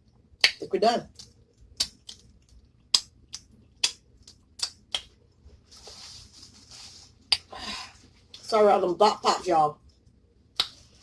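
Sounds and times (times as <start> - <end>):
soft rustling hiss: 3.5 - 11.0.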